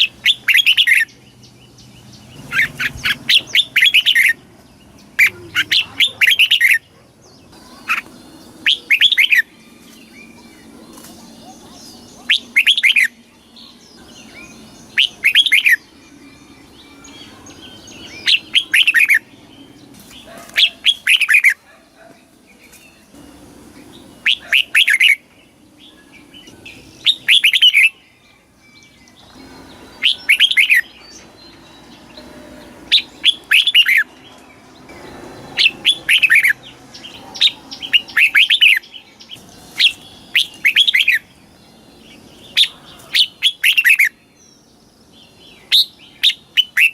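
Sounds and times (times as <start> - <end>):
bird singing: 0.0 - 46.9.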